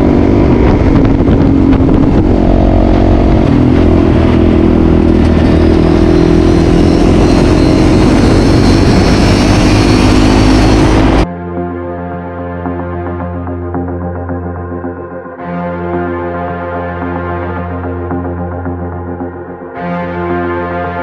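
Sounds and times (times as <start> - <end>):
motorcycle engines running: 0.0 - 11.2.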